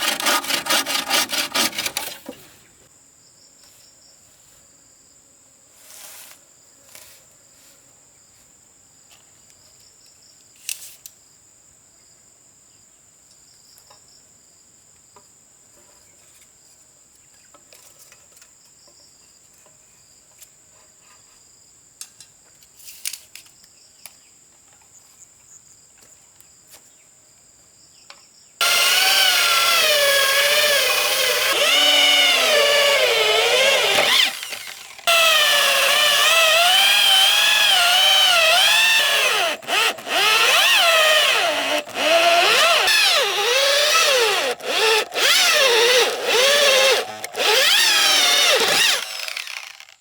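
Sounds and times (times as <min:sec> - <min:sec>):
hand saw cutting wood: 0:00.0 - 0:02.6, 0:28.6 - 0:50.0
power tool starting up: 0:28.6 - 0:50.0.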